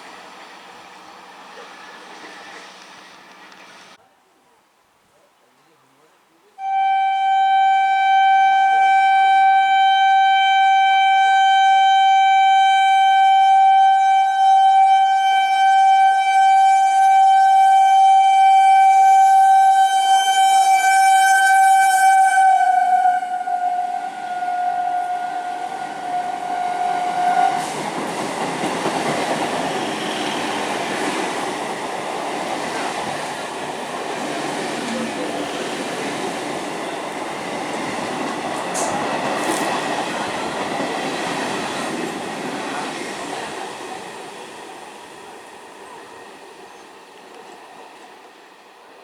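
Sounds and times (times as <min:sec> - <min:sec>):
train horn: 0:06.6 - 0:28.2, 0:29.5 - 0:31.2
train wheels clattering on rails: 0:27.1 - 0:48.5.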